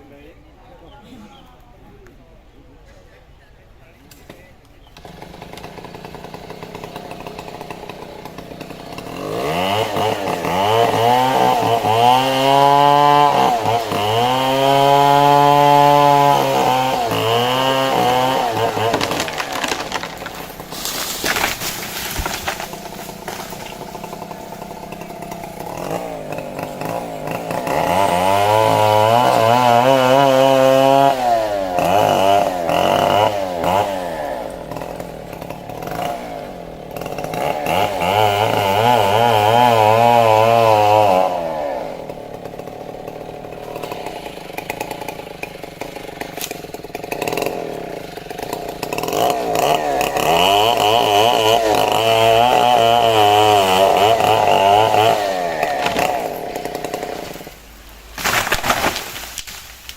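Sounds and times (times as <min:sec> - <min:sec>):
chainsaw revving and cutting: 0:04.1 - 0:59.6.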